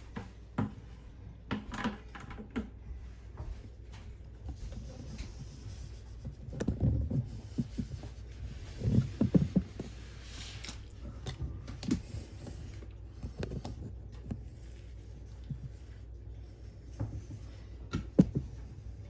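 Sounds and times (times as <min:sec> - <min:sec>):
steady low hum: 0:02.4 - 0:19.0.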